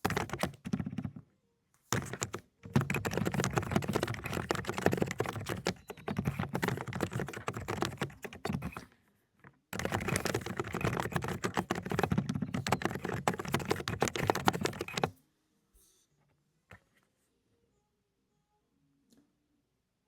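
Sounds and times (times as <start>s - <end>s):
fast typing on mechanical keyboard: 0.0s - 1.2s, 1.9s - 8.8s, 9.8s - 15.1s.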